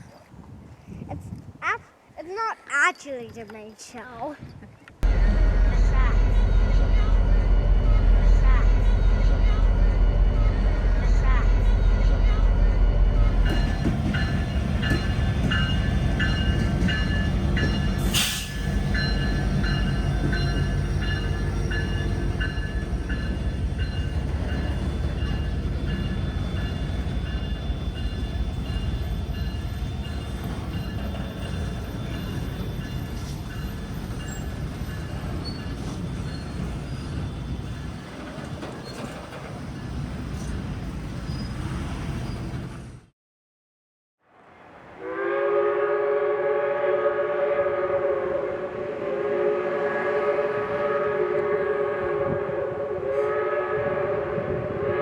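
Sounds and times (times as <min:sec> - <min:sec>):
train cars rolling on rails: 0:13.2 - 0:43.1
wheel squeal: 0:31.1 - 0:38.0, 0:41.2 - 0:42.6.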